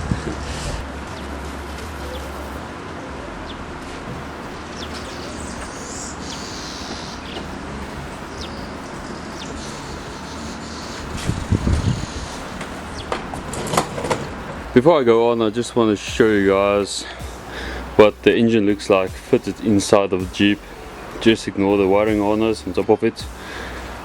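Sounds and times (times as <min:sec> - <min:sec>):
outdoor background noise: 0:00.0 - 0:24.0
short high chirps: 0:04.1 - 0:13.6.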